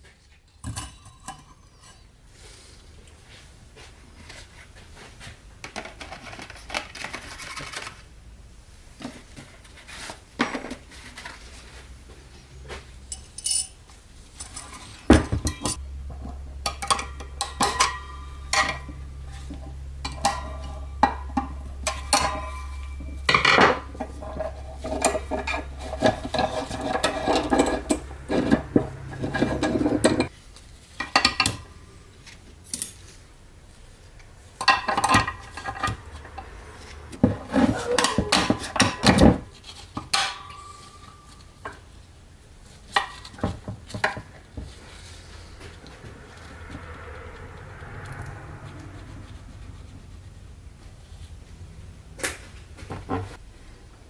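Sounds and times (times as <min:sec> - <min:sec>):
steady low hum: 0:12.0 - 0:32.2
metal parts clinking: 0:13.1 - 0:30.3.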